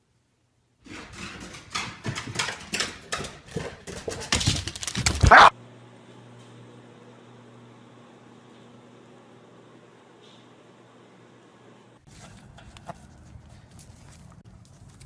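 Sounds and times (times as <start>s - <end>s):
dog making short sharp sounds: 5.2s - 5.5s.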